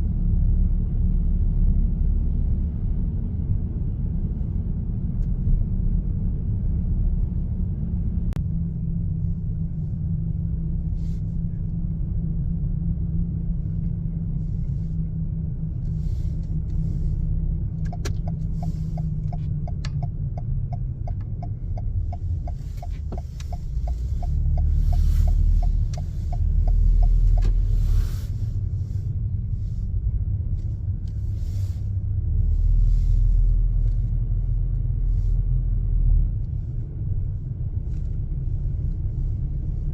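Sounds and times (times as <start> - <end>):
low road rumble: 0.0 - 39.9
turn signal ticking: 17.5 - 28.0.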